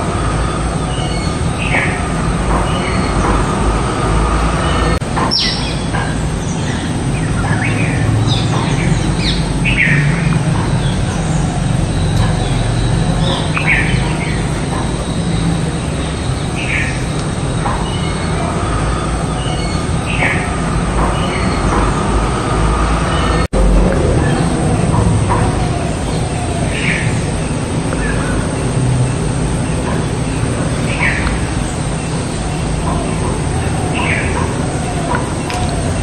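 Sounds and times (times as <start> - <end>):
high bird chirps: 4.6 - 17.0
low rumble: 19.9 - 34.0.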